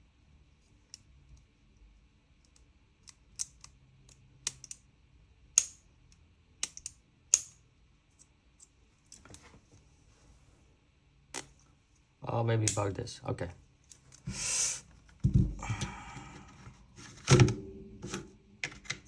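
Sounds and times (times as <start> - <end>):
airsoft gun parts clicking: 2.4 - 4.8, 5.6 - 7.6.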